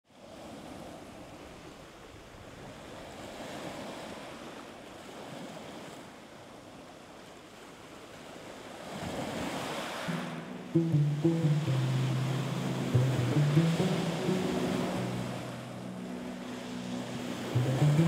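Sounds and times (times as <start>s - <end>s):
sea waves washing in: 8.1s - 18.0s
low held music notes: 10.1s - 18.0s.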